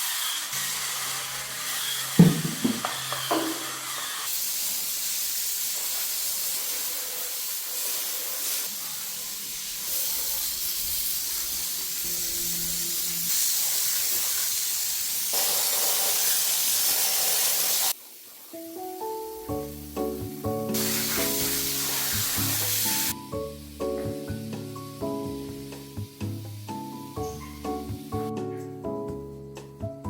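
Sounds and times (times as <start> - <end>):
steady hiss of rushing air: 20.4 - 25.0.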